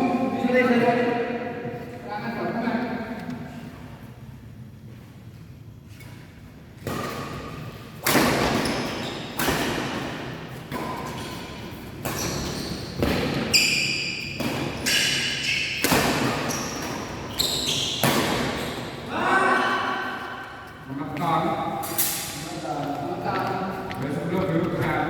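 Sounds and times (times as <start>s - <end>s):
sneakers squeaking on court: 8.4s - 9.8s, 10.7s - 19.0s
racket striking shuttlecock: 14.2s - 17.3s.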